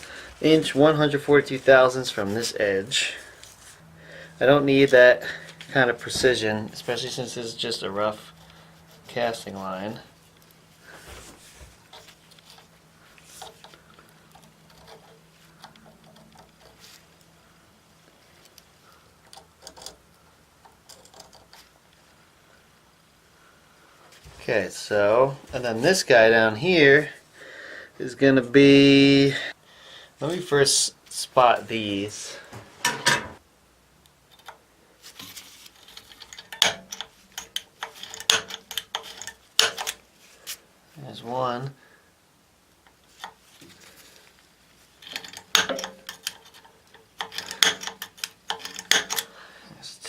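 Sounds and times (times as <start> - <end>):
faint low hum: 0.0 - 28.6
small hand tools clicking and tapping: 45.0 - 49.3.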